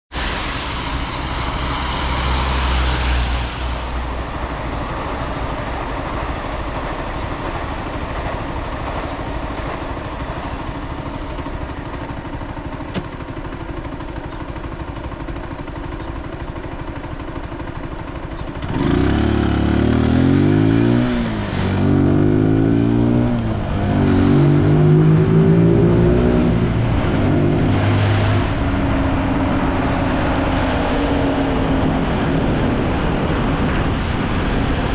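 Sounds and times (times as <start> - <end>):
hiss of wet road: 0.1 - 4.6
motorcycle engine: 0.2 - 34.9.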